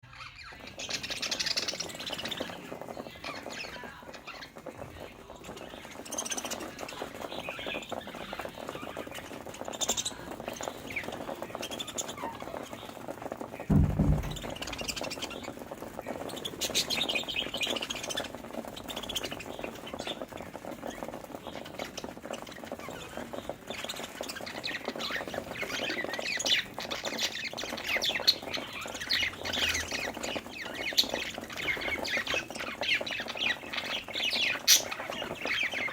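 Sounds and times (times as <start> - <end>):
budgerigars chirping: 0.0 - 4.7, 13.7 - 15.5, 22.8 - 35.9
low thump: 13.7 - 15.1.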